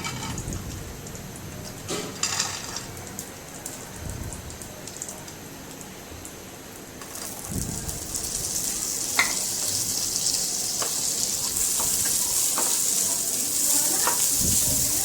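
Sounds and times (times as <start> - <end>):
nuts sizzling in a pan: 7.0 - 15.0.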